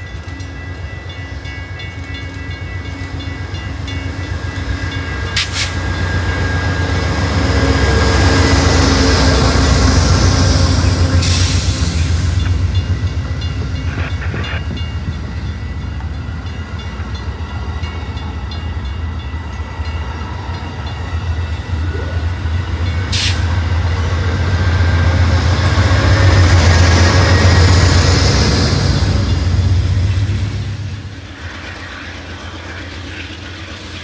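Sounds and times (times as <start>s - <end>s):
train rail cars rumbling: 0.0s - 34.0s
sharp hiss: 11.1s - 12.4s, 23.1s - 23.5s.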